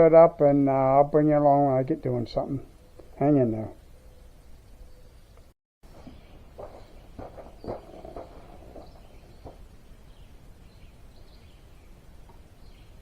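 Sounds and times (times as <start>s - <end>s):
outdoor background noise: 0.0s - 13.0s
birds chirping: 1.6s - 13.0s.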